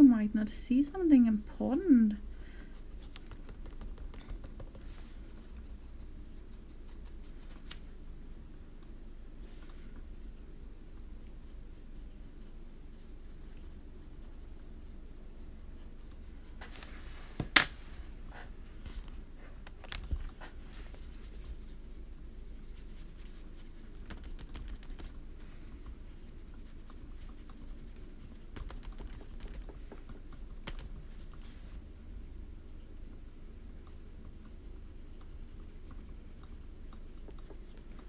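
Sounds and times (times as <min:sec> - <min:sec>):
low steady hum: 0:00.0 - 0:38.0
coloring tools tapping on desk: 0:17.4 - 0:17.8.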